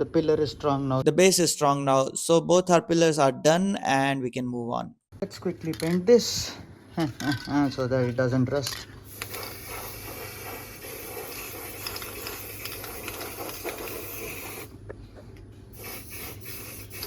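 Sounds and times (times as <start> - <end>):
spray paint hissing: 9.0 - 14.7, 15.7 - 17.0.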